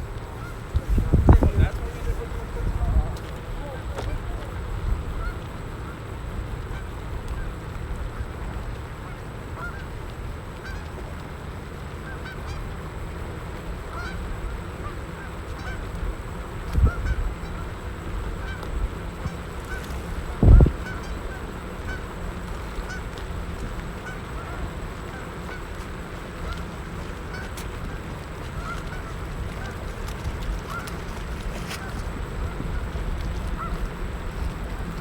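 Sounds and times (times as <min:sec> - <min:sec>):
steady low rumble: 0:00.0 - 0:08.9, 0:12.9 - 0:35.0
geese honking: 0:00.3 - 0:07.5, 0:08.1 - 0:09.9, 0:10.6 - 0:11.1, 0:12.0 - 0:12.6, 0:13.8 - 0:34.6
low thumps: 0:20.3 - 0:20.8.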